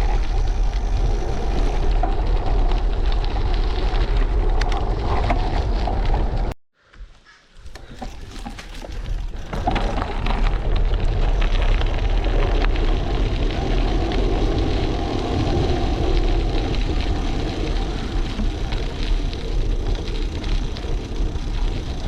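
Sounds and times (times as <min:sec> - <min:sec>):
road and tyre noise: 0:00.0 - 0:06.6, 0:07.6 - 0:22.0
wind on camera microphone: 0:00.0 - 0:06.6, 0:08.0 - 0:22.0
small rattles: 0:07.6 - 0:10.6.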